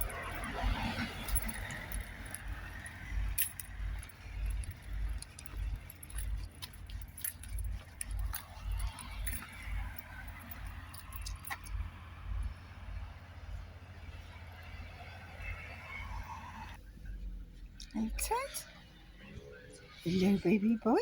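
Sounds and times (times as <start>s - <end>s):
metallic jingling and clinking: 0.0s - 14.8s
low rumble: 0.0s - 18.1s.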